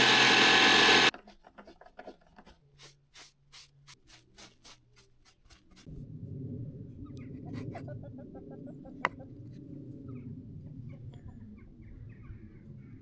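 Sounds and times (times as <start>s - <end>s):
small power tool running: 0.0s - 1.1s
low rumble: 5.9s - 11.8s.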